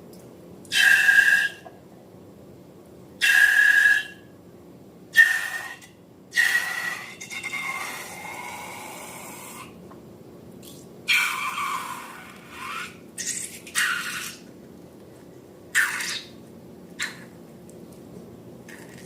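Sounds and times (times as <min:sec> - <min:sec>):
air squealing out of balloon: 0:11.1 - 0:14.4.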